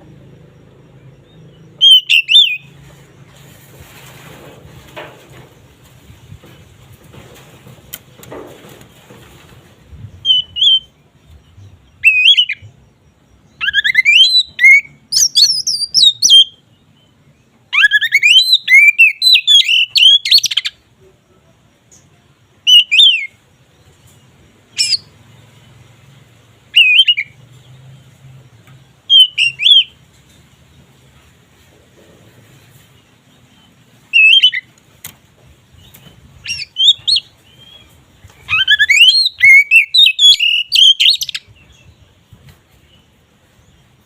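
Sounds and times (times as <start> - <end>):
bird whistling song: 0.8 - 2.8, 9.9 - 17.0, 17.7 - 20.8, 22.6 - 23.4, 24.7 - 25.2, 26.7 - 27.4, 29.1 - 30.0, 33.5 - 34.7, 35.7 - 42.2.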